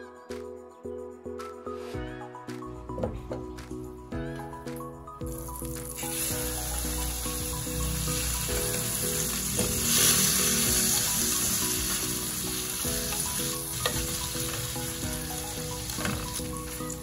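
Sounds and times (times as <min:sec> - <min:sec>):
chicken sizzling in butter: 0:05.4 - 0:17.0.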